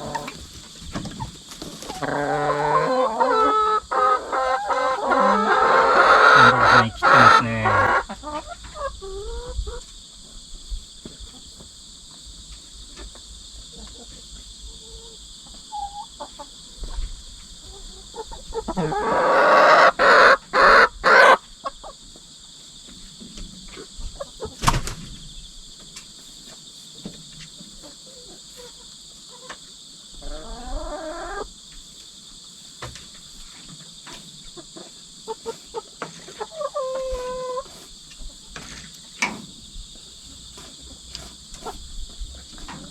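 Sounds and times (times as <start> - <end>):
hens squabbling flurry: 0.0 - 9.8, 34.8 - 38.8
hens clucking and calling: 0.0 - 9.9, 13.0 - 22.1, 27.4 - 31.6, 34.1 - 39.0, 40.1 - 42.9
insects chirring: 0.0 - 42.9.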